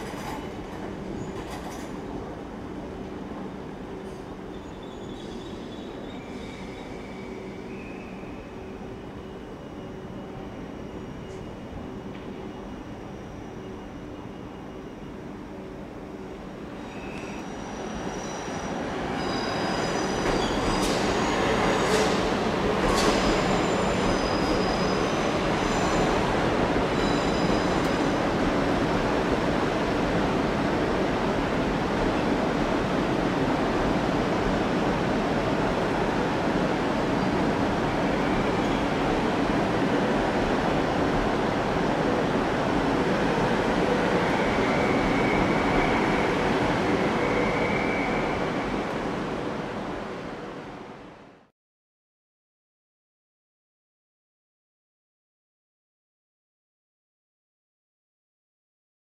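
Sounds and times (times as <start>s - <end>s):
train wheels squealing: 0.0s - 2.0s, 4.0s - 15.2s, 16.7s - 28.2s, 43.8s - 48.7s.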